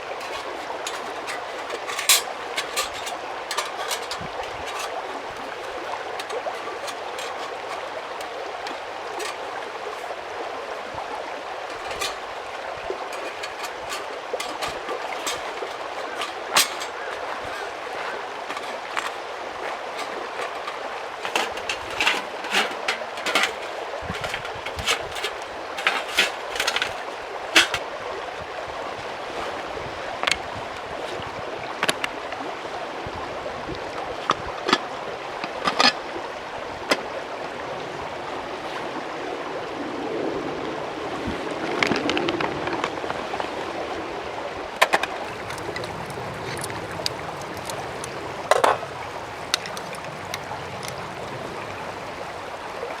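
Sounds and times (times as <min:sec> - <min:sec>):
sharp clicks and knocks: 0:00.0 - 0:05.0, 0:05.6 - 0:09.5, 0:11.7 - 0:12.4, 0:13.0 - 0:27.9
mountain stream running: 0:00.0 - 0:53.0.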